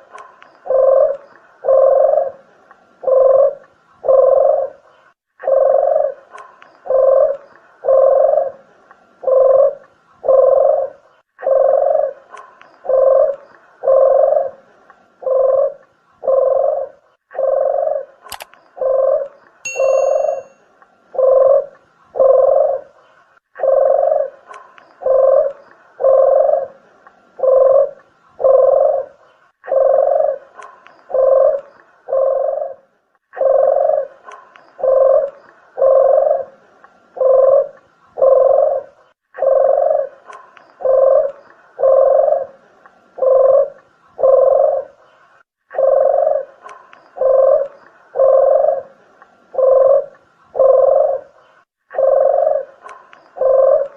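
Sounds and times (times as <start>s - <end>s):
dove cooing: 0.0s - 20.5s, 21.2s - 36.6s, 37.2s - 42.6s, 43.2s - 45.1s, 45.7s - 53.9s
sharp click: 18.3s - 18.6s
short high chirp: 19.7s - 20.6s.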